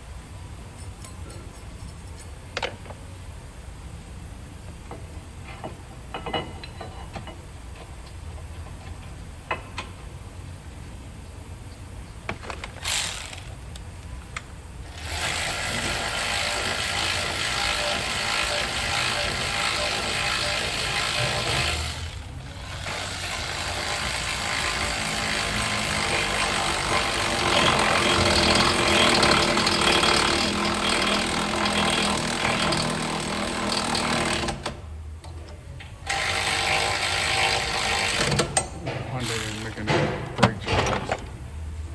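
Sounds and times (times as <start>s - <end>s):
power tool running: 12.8s - 13.6s, 14.8s - 34.7s, 36.0s - 38.5s, 39.1s - 40.2s.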